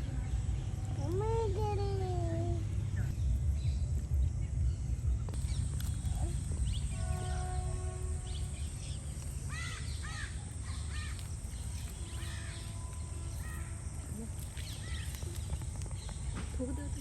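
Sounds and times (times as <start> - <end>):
birds calling: 0.0 - 17.0
constant low rumble: 0.0 - 17.0
crows cawing: 9.4 - 13.9.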